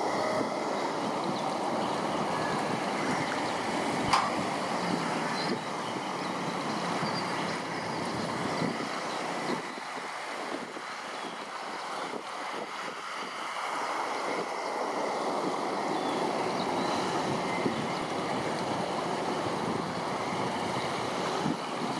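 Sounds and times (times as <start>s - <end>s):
flowing water rushing: 0.0s - 21.9s.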